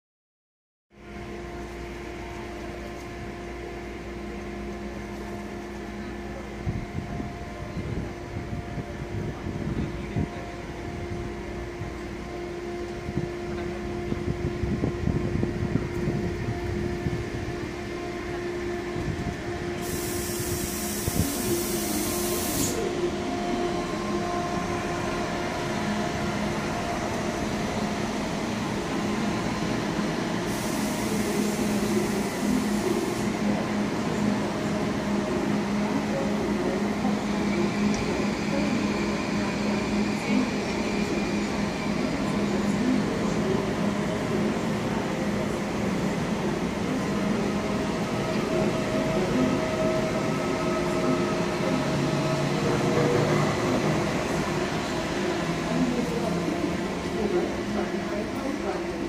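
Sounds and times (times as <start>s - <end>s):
train electric hum: 0.9s - 59.0s
high hiss bursts: 19.8s - 22.9s.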